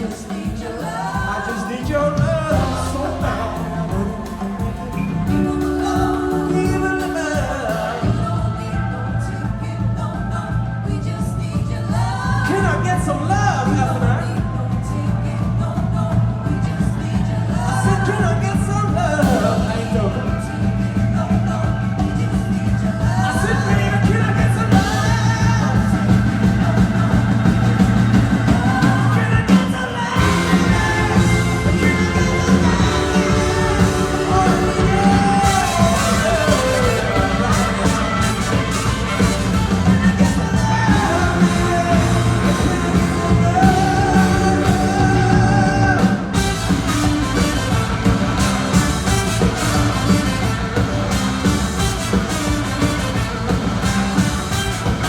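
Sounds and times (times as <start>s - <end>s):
live rock band playing: 0.0s - 55.0s
person singing: 0.0s - 55.0s.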